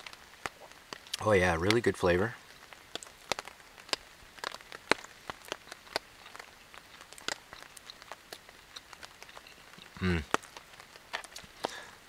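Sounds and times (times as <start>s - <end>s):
faint rain hiss: 0.0s - 12.0s
raindrops ticking on shelter: 0.0s - 12.0s.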